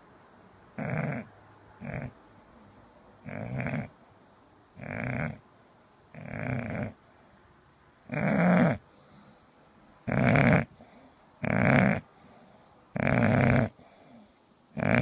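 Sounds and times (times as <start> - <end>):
dog snoring loudly: 0.8 - 2.2, 3.2 - 3.9, 4.8 - 5.4, 6.1 - 7.0, 8.1 - 9.2, 10.0 - 15.0.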